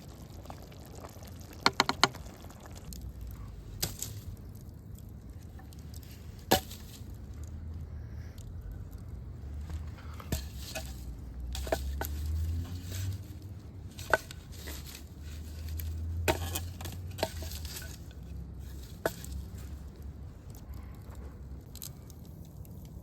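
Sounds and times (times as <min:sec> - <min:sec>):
campfire clicks and pops: 0:00.0 - 0:07.8.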